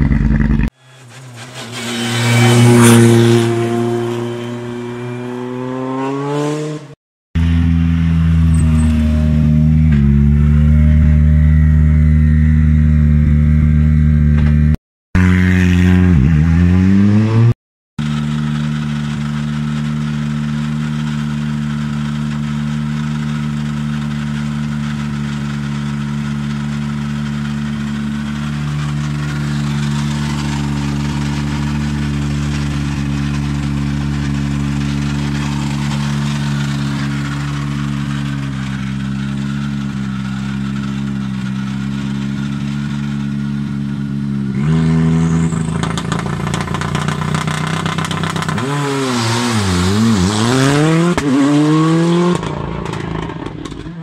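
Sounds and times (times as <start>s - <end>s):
car accelerating revs rising: 1.5s - 8.4s, 47.5s - 53.4s
rally car engine idling: 18.0s - 44.5s.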